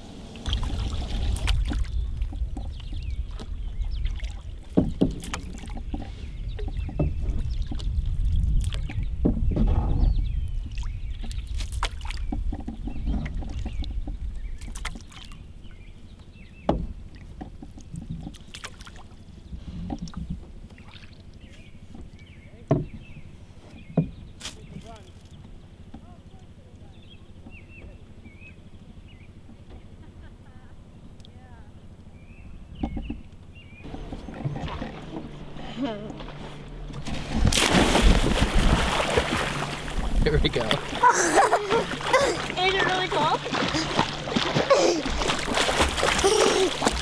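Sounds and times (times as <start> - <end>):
paddle strokes in water: 0.0 - 31.2, 32.8 - 47.0
low rumble: 25.1 - 47.0.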